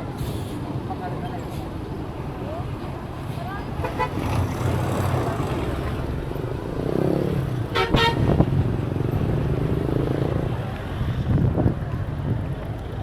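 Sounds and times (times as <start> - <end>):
road traffic rumble: 0.0 - 13.0
car horn toot: 3.8 - 4.4, 7.7 - 8.5.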